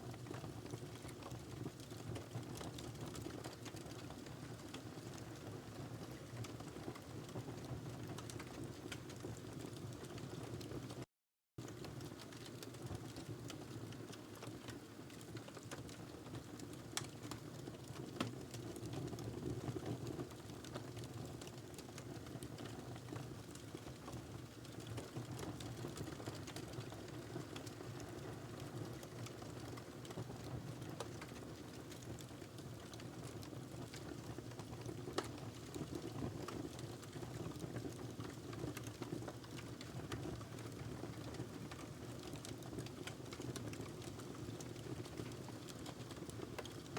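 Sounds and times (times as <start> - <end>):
wood fire crackling: 0.1 - 10.8, 11.6 - 46.9.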